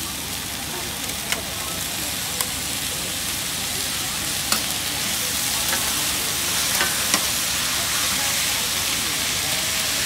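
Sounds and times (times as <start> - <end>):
noodles sizzling on a griddle: 0.0 - 10.0
spatula clicking on griddle: 5.6 - 7.4.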